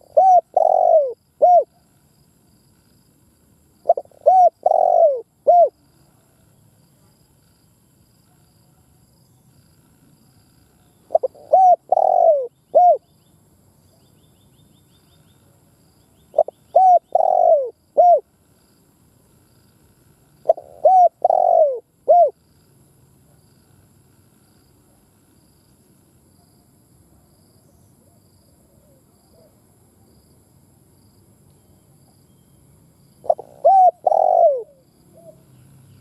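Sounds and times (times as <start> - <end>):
dove cooing: 0.0 - 1.9, 3.8 - 5.8, 11.1 - 13.1, 16.3 - 18.3, 20.4 - 22.4, 33.2 - 35.5.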